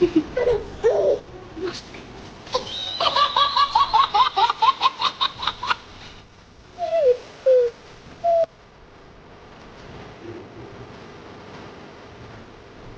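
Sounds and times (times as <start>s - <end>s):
high-pitched calls: 6.8s - 8.5s
lower falling calls: 6.8s - 8.5s.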